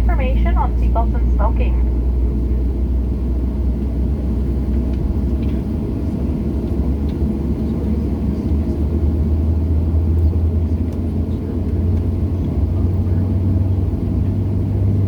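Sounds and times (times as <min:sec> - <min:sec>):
deep hum: 0:00.0 - 0:07.0
airplane cabin rumble: 0:00.0 - 0:15.0.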